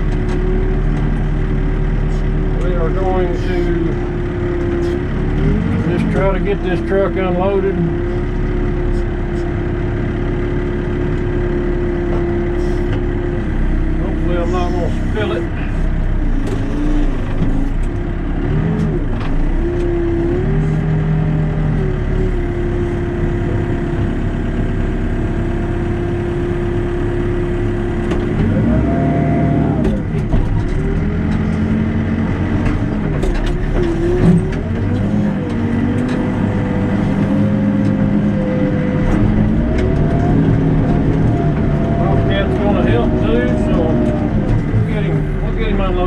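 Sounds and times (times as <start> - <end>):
backhoe diesel engine: 0.0 - 46.0
metal clanks and knocks: 32.5 - 36.4.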